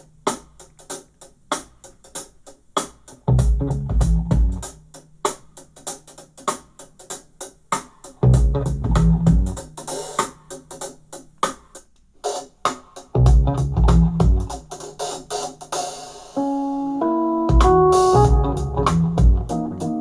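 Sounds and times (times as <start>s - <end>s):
heavy bass hits: 3.4s - 4.6s, 8.3s - 9.6s, 13.3s - 14.6s, 17.5s - 20.0s
music from a portable speaker: 16.4s - 20.0s.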